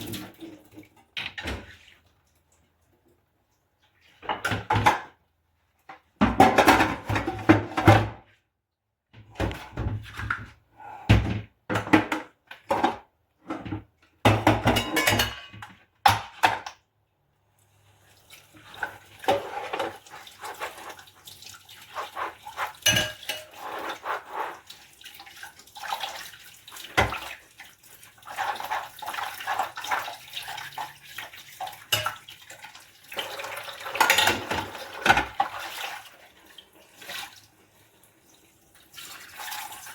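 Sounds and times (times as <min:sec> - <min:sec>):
tap water running: 0:00.0 - 0:05.0, 0:17.6 - 0:39.9
dishes clattering: 0:06.2 - 0:08.2, 0:13.6 - 0:16.7, 0:22.6 - 0:23.6, 0:33.8 - 0:35.6
dishes clinking: 0:14.3 - 0:16.2, 0:22.8 - 0:23.6, 0:34.0 - 0:35.3.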